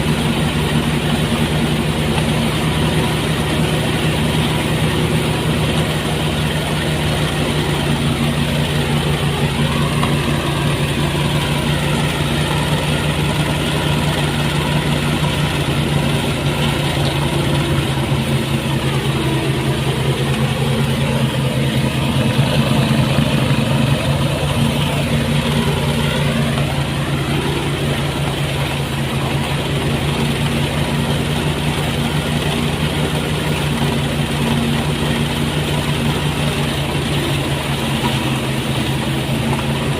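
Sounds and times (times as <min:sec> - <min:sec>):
thresher engine drone: 0:00.0 - 0:39.9
wavering high tone: 0:07.6 - 0:28.4.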